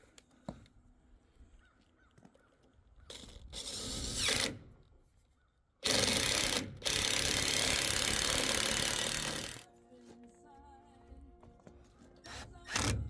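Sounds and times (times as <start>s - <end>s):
power drill driving screws into wood: 3.1s - 4.7s, 5.8s - 9.6s, 12.3s - 13.0s.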